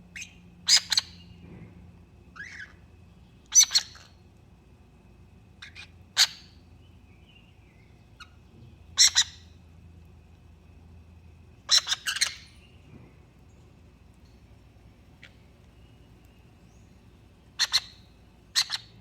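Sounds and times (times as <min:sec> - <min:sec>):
pet birds calling: 0:00.2 - 0:01.5, 0:02.4 - 0:04.2, 0:05.6 - 0:09.6, 0:11.6 - 0:19.0.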